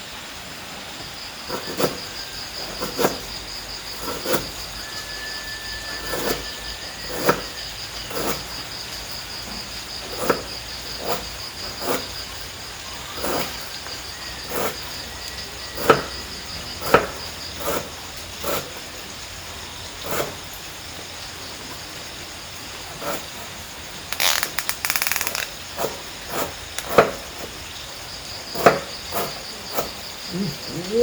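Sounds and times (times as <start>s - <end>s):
crickets trilling: 0.0s - 31.0s
rattling burst of clicks: 24.2s - 25.6s.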